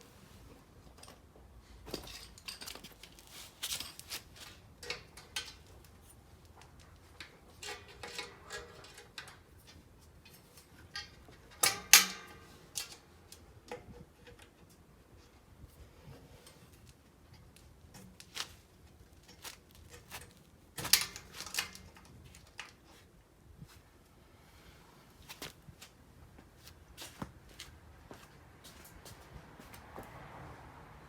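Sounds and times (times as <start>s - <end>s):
metallic clicks of tools: 4.8s - 14.6s
sharp metal clanks: 10.9s - 13.0s.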